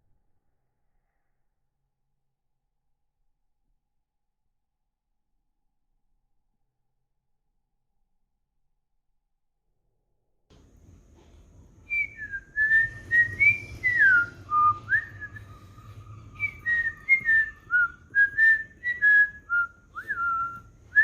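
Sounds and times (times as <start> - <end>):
parrot whistling a tune: 11.9 - 21.0.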